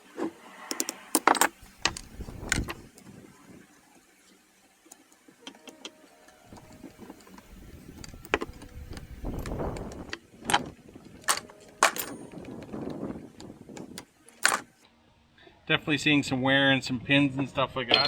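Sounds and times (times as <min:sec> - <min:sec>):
metal parts clinking: 0:00.7 - 0:02.9, 0:06.5 - 0:12.6, 0:14.4 - 0:14.7.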